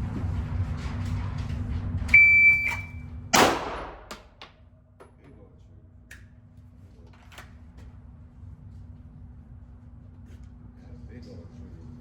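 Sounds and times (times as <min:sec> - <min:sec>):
shot timer beep: 0:02.2 - 0:03.0
pistol shot: 0:03.4 - 0:04.1.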